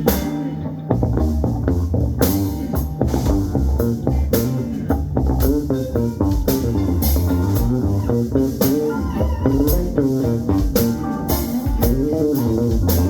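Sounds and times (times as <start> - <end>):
guitar with bending notes: 0.0 - 13.0
live band playing: 0.0 - 13.0.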